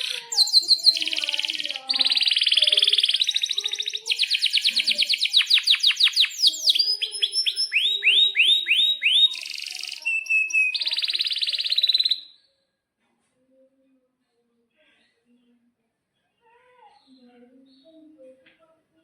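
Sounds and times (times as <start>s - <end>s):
canary singing trills: 0.0s - 12.5s.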